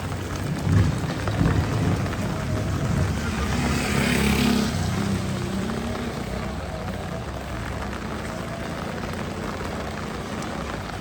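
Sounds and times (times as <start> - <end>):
motor vehicle passing: 0.3 - 11.0.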